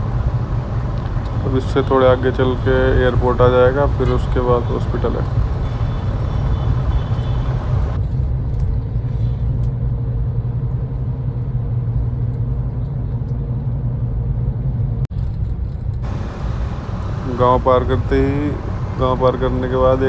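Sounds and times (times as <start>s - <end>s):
car engine and road noise: 0.0s - 8.0s, 16.0s - 20.0s
high hiss: 0.0s - 8.0s, 16.0s - 20.0s.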